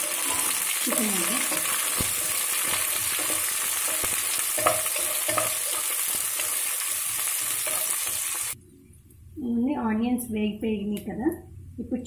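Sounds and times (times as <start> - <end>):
vegetables sizzling in oil: 0.0 - 8.6
spatula knocking on pan: 1.4 - 7.9.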